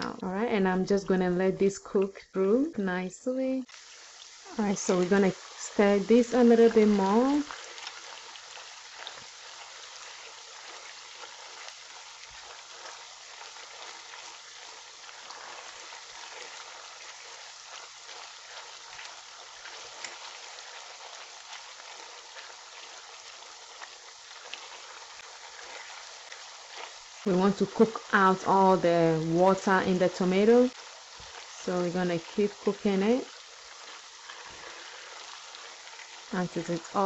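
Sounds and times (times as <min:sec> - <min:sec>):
food sizzling in a pot: 0:00.0 - 0:37.0.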